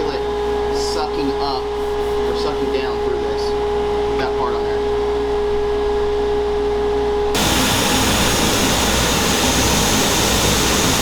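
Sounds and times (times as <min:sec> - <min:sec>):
motor hum with whine: 0:00.0 - 0:11.0
loud rushing noise: 0:07.4 - 0:11.0.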